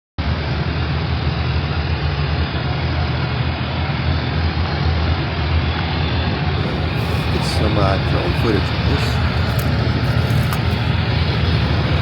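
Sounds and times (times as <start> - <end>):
vehicle driving rumble: 6.6 - 12.0.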